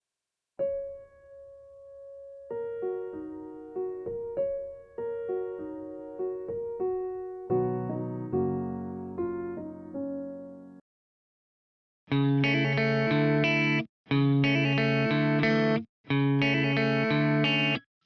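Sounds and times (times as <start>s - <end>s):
piano music: 0.6s - 10.8s.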